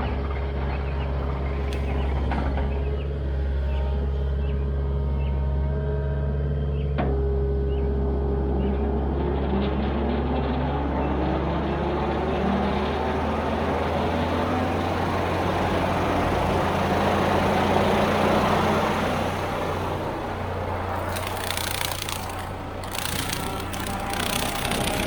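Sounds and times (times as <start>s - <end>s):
skid steer diesel engine: 10.6s - 25.0s
rattling crackling noise: 20.8s - 25.0s.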